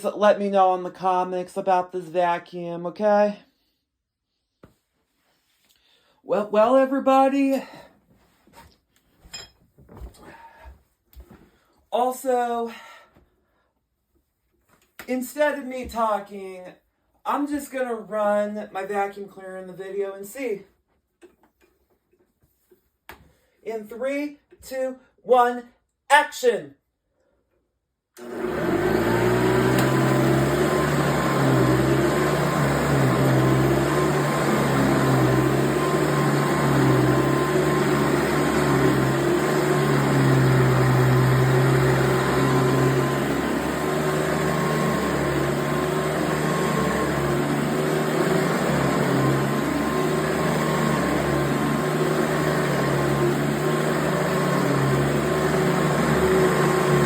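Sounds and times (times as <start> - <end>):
vacuum cleaner motor whining: 28.2 - 57.0.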